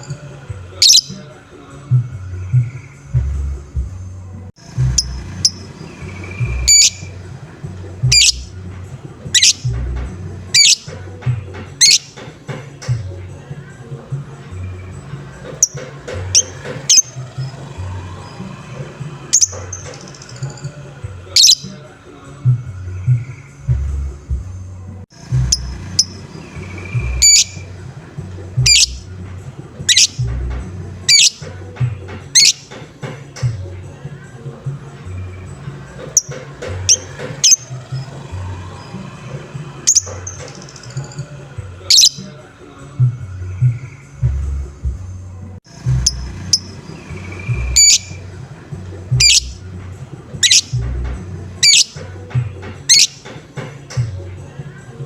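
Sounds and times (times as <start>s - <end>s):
bird giving sharp high calls: 0.0s - 1.3s, 4.6s - 8.6s, 9.2s - 9.8s, 10.4s - 11.1s, 11.7s - 12.3s, 15.5s - 20.7s, 21.3s - 21.9s, 25.2s - 29.2s, 29.8s - 31.7s, 32.3s - 32.8s, 36.0s - 42.4s, 45.7s - 49.7s, 50.4s - 53.3s
lovebird squawks: 0.0s - 1.3s, 4.6s - 8.6s, 9.2s - 12.3s, 15.5s - 21.9s, 25.2s - 29.1s, 29.7s - 32.9s, 35.2s - 42.4s, 46.0s - 49.7s, 50.4s - 53.4s
music with bass beat: 22.4s - 34.2s, 43.0s - 55.0s.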